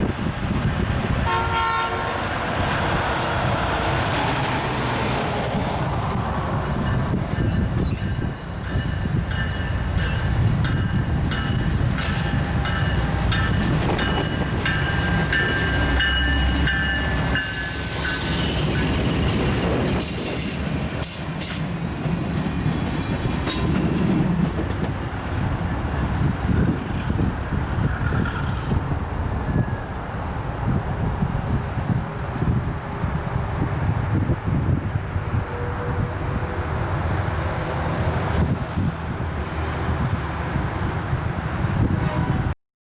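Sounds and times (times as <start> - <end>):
diesel locomotive rumbling: 0.0 - 42.6
train wheels on rail: 0.0 - 42.6
high wheel squeals and clicks: 4.2 - 5.3.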